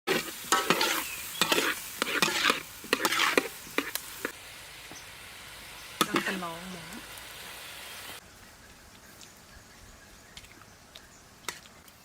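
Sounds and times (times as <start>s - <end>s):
utensil scraping a pan: 0.1s - 4.4s
food sizzling: 0.1s - 8.2s.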